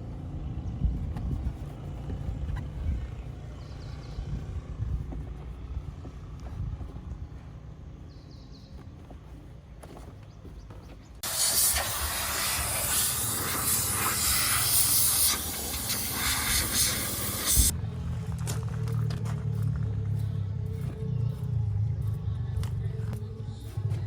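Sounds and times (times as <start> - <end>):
low hum: 0.0 - 24.0
steam cleaner jet hissing: 11.2 - 17.7.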